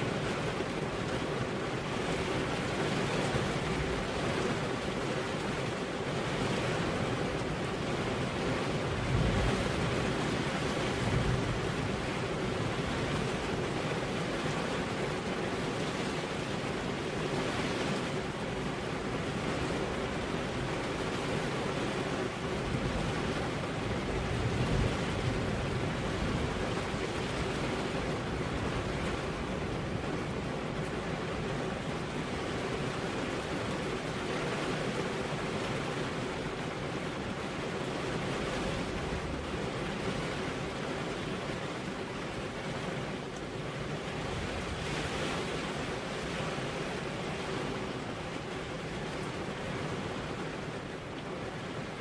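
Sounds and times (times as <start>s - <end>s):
rain and wind hiss: 0.0s - 52.0s
low thunder rumbles: 8.8s - 13.0s.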